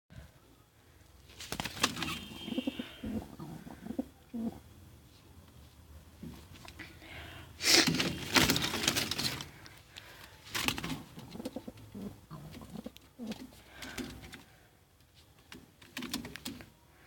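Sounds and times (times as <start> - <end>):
pigeon wings flapping: 1.4 - 2.4, 7.9 - 9.5
pigeons cooing: 2.0 - 4.7, 11.2 - 14.2.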